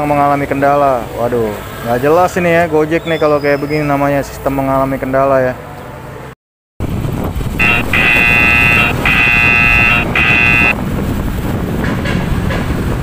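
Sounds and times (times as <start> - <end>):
traffic noise: 0.0 - 13.0
wind rumble: 6.8 - 13.0
horn bursts: 7.6 - 10.8.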